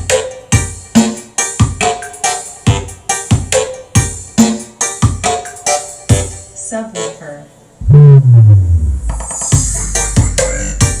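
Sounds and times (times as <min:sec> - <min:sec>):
keyboard notes: 0:04.8 - 0:09.2.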